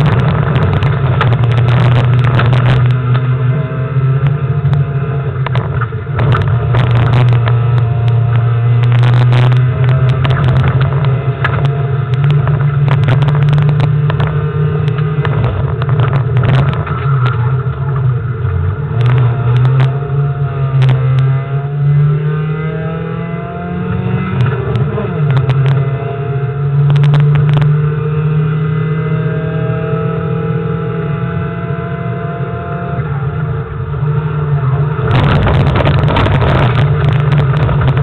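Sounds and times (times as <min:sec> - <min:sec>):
sharp clicks and knocks: 0:00.0 - 0:03.3, 0:05.4 - 0:20.0
car engine revving: 0:00.0 - 0:38.0
road noise: 0:00.0 - 0:38.0.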